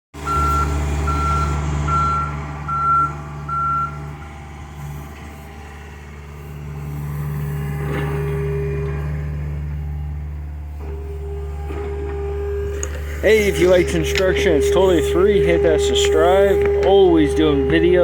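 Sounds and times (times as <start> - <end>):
travel alarm beeping: 0.2 - 4.0
excavator diesel engine running: 0.2 - 18.0.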